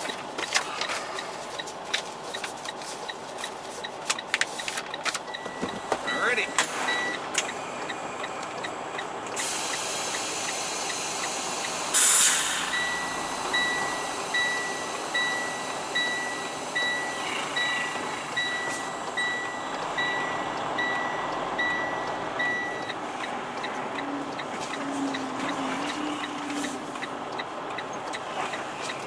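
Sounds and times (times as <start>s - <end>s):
diesel engine idling: 0.0s - 29.0s
backup alarm beeping: 4.9s - 27.9s
air brakes hissing: 9.4s - 19.7s.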